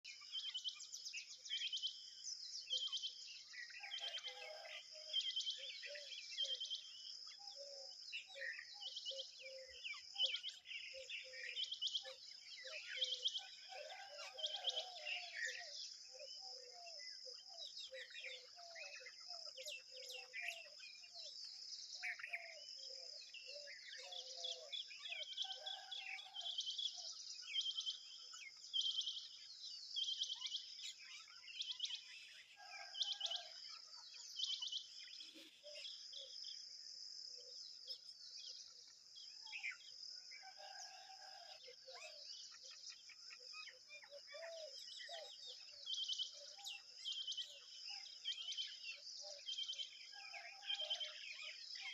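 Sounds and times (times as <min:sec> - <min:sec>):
birds chirping: 0:37.7 - 0:50.2.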